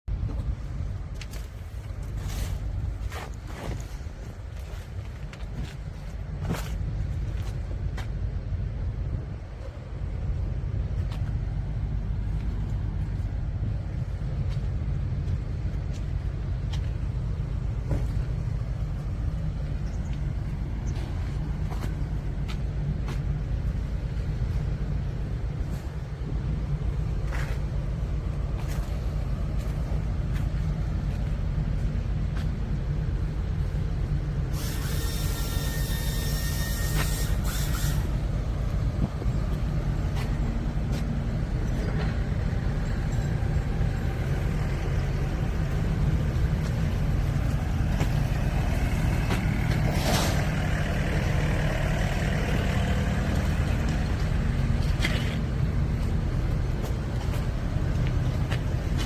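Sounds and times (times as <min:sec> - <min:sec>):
bus diesel engine idling: 0:00.0 - 0:59.0
air hiss: 0:34.5 - 0:38.2.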